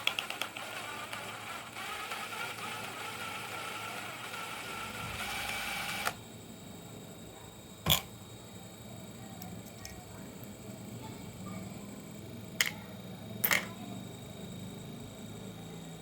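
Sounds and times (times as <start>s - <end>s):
small electric motor whirring: 0.0s - 6.2s.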